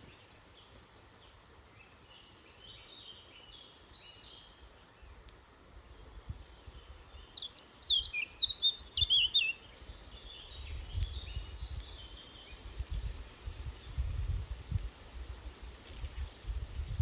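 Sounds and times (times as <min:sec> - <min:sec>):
songbird twittering: 0:05.9 - 0:13.0.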